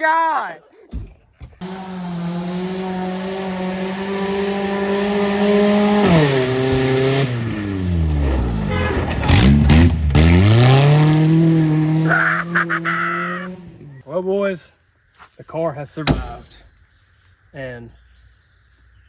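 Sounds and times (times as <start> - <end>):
car engine at high revs: 1.5 - 14.0.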